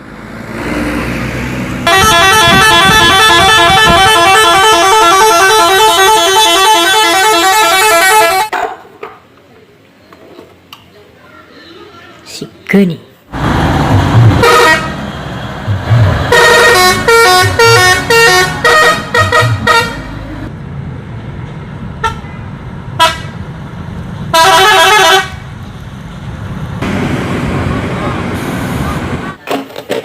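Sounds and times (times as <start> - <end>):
bus engine rumble: 0.0 - 8.5, 13.3 - 29.4
bus musical air horn: 1.8 - 8.5, 14.4 - 15.1, 15.7 - 20.5, 22.0 - 22.3, 23.0 - 23.4, 24.3 - 25.4.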